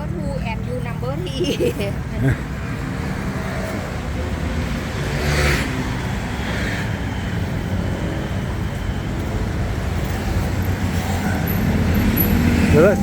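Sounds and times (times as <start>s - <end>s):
vehicle engines passing: 0.0s - 13.0s.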